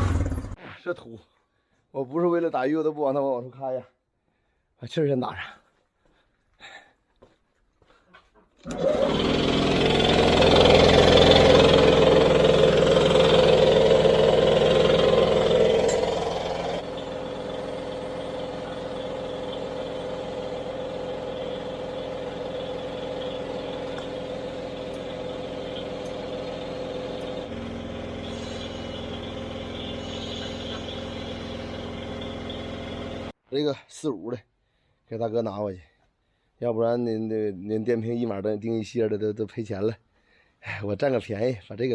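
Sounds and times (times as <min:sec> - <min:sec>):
small motor running: 0:08.6 - 0:33.3.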